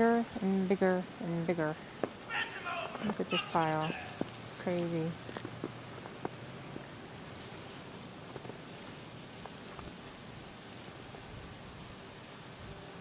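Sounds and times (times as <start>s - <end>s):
wet snow falling and pattering: 0.0s - 13.0s.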